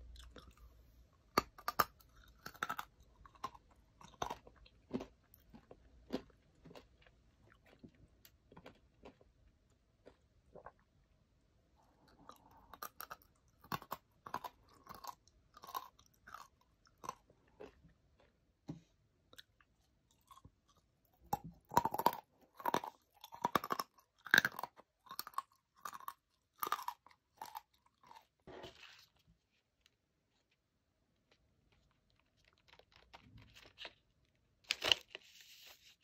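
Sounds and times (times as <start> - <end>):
person chewing crunchy almonds: 0.0 - 11.2, 11.8 - 18.6, 19.3 - 29.1.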